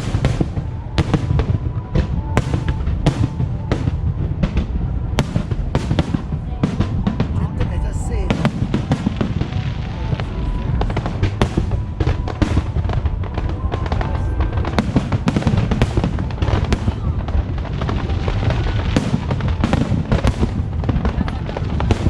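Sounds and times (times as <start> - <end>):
music playing: 0.0 - 18.0
fireworks bangs and crackles: 0.0 - 22.0.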